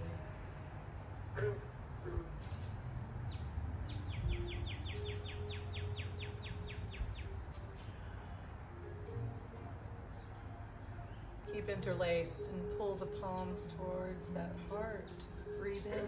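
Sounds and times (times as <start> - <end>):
songbird whistling notes: 1.3 - 8.4.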